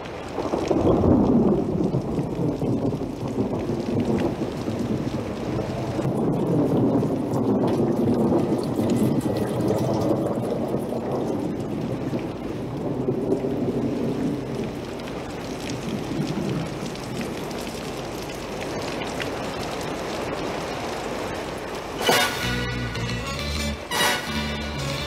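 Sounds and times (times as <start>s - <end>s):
heavy rain on cobbled street: 0.0s - 25.0s
loud burst of music: 22.0s - 25.0s.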